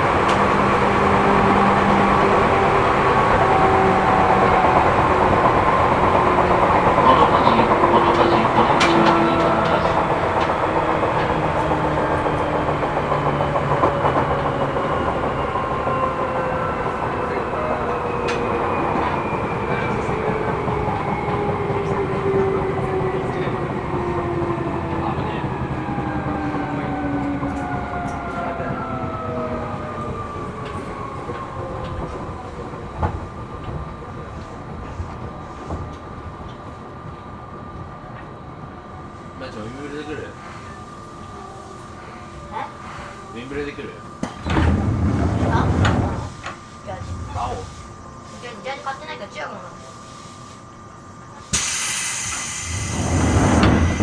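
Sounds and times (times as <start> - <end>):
wheels clattering on rails: 0.0 - 23.1, 42.7 - 49.6, 52.7 - 54.0
traction motor whine falling: 43.2 - 54.0.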